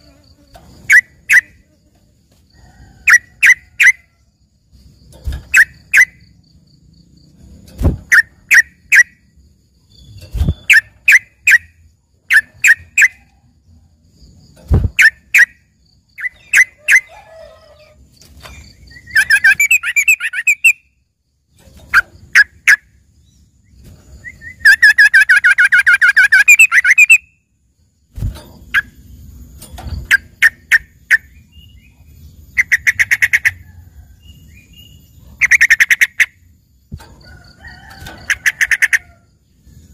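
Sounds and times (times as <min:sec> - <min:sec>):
bird chirping and trilling: 0:00.8 - 0:01.6, 0:03.0 - 0:04.1, 0:05.2 - 0:06.3, 0:08.1 - 0:09.3, 0:09.9 - 0:13.2, 0:14.8 - 0:21.0, 0:21.9 - 0:27.4, 0:29.9 - 0:33.6, 0:34.2 - 0:36.9.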